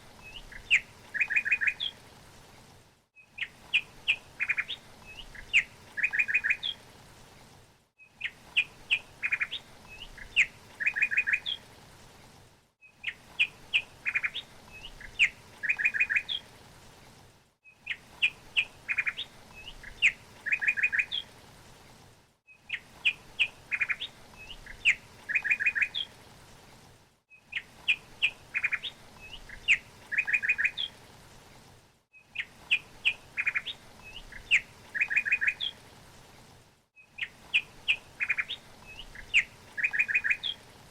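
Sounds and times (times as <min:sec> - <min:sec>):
songbird chirping and trilling: 0:00.2 - 0:02.0, 0:03.2 - 0:06.8, 0:08.0 - 0:11.6, 0:12.9 - 0:16.5, 0:17.7 - 0:21.3, 0:22.5 - 0:26.1, 0:27.5 - 0:31.0, 0:32.2 - 0:35.8, 0:37.0 - 0:40.6.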